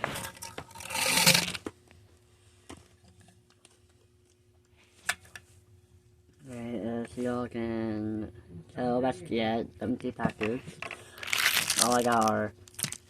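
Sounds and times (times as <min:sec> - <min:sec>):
candy packaging crinkling: 0:11.1 - 0:13.0.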